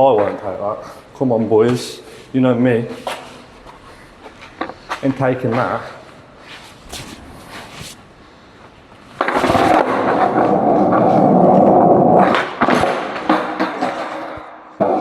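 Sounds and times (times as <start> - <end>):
skateboard wheels rolling on pavement: 9.2 - 13.9.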